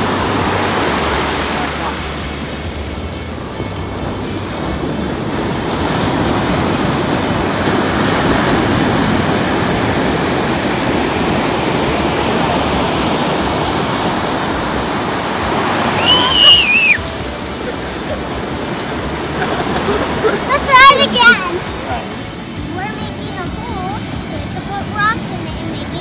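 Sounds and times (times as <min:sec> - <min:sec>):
ocean surf washing on beach: 0:00.0 - 0:26.0
high-pitched shriek: 0:15.9 - 0:17.1.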